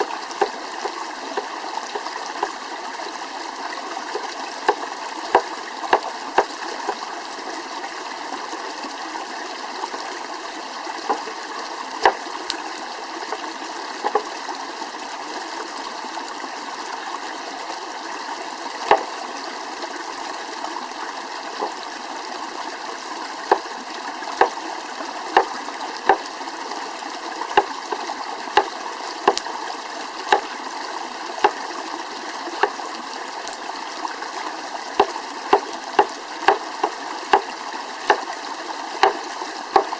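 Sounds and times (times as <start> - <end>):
flowing stream: 0.0 - 39.9
sharp knocks: 12.0 - 12.2, 14.0 - 14.3, 18.9 - 19.1, 35.0 - 37.5, 39.0 - 39.2.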